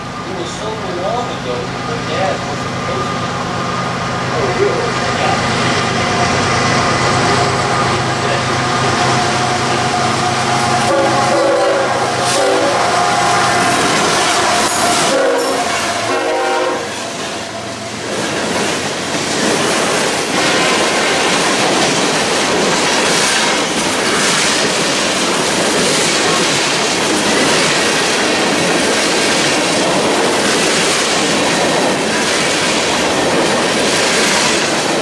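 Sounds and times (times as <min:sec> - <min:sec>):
train wheels rumbling and clattering: 0:00.0 - 0:35.0
train horn chord: 0:09.5 - 0:18.0.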